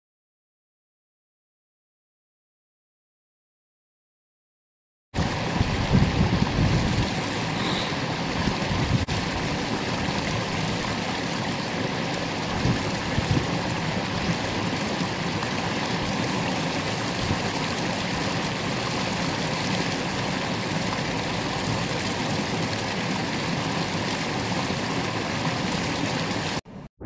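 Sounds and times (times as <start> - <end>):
flowing water rushing: 5.2 - 26.6.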